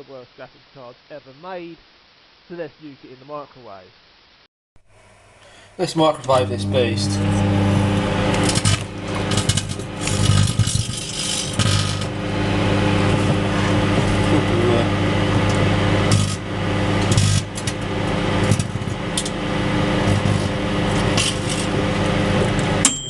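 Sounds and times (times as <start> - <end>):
microwave oven humming: 4.9 - 23.0
electrical arcing crackles and pops: 5.9 - 22.8.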